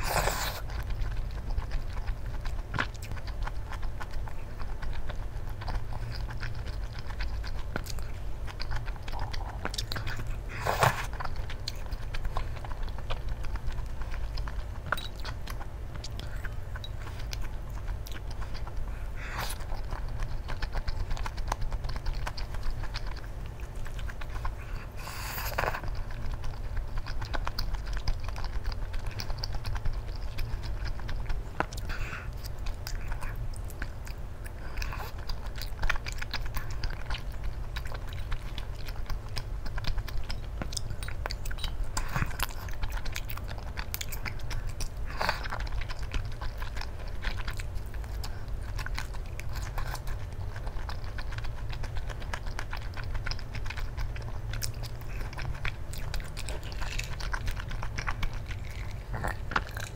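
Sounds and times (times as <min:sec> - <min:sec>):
slurping: 0:00.0 - 0:15.3
person chewing: 0:00.0 - 0:59.9.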